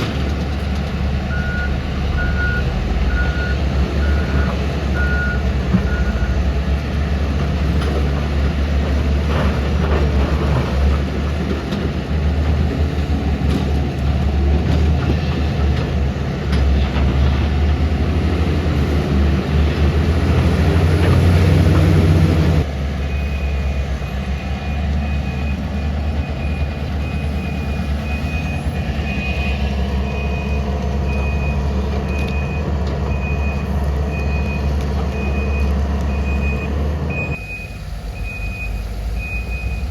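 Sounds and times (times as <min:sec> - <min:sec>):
excavator diesel engine running: 0:00.0 - 0:39.9
alarm beeping: 0:23.1 - 0:34.6.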